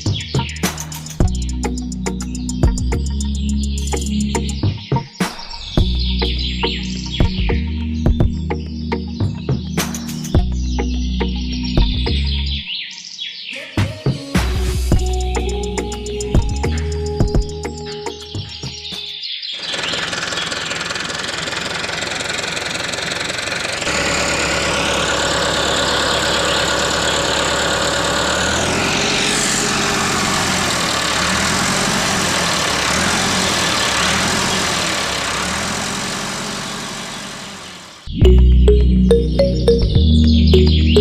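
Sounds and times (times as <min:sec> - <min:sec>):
engine running: 0:00.0 - 0:04.8, 0:14.8 - 0:18.0, 0:19.6 - 0:41.0.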